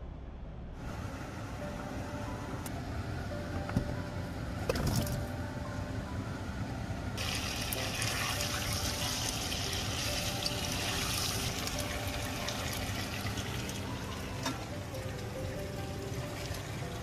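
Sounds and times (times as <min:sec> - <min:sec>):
potatoes sizzling in hot oil: 0:07.2 - 0:11.9.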